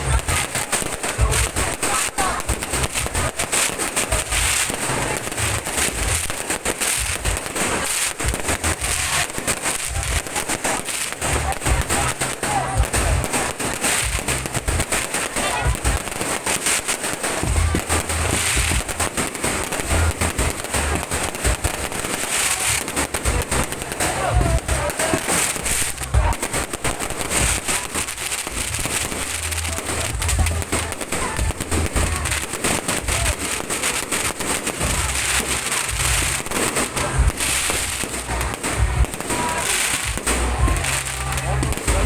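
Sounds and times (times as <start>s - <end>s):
fireworks bangs and booms: 0.0s - 42.0s
fireworks crackling: 0.0s - 42.0s.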